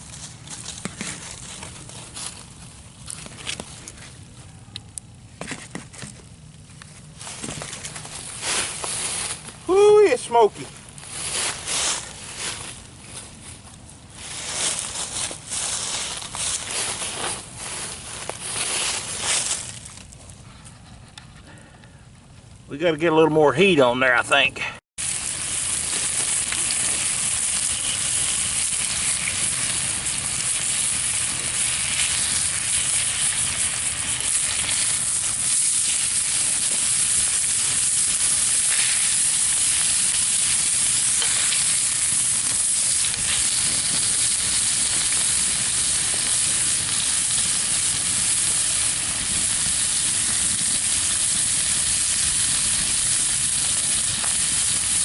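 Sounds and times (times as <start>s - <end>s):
chicken searing on a griddle: 7.1s - 12.6s, 25.0s - 55.0s.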